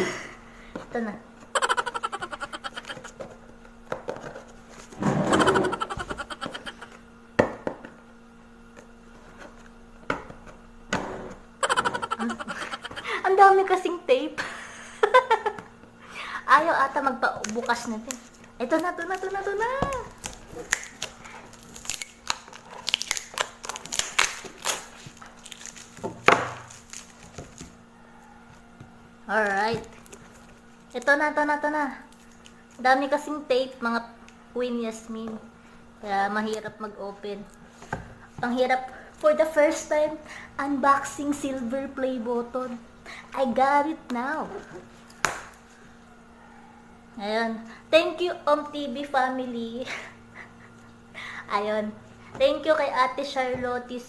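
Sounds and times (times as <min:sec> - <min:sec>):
packing tape ripping off cardboard: 0:18.7 - 0:27.6.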